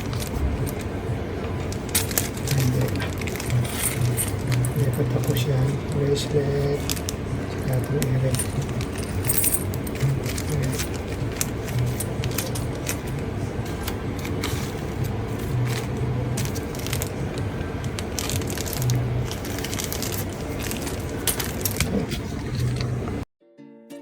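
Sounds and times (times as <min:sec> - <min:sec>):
low workshop hum: 0:00.0 - 0:23.2
metal jewellery and tools clinking: 0:01.9 - 0:05.4, 0:08.0 - 0:13.2, 0:18.2 - 0:22.9.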